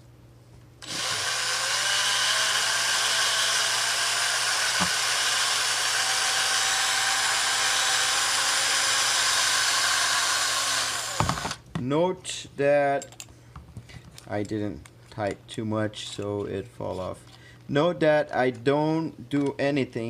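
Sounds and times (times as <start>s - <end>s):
electric drill motor whine: 0.8s - 11.6s.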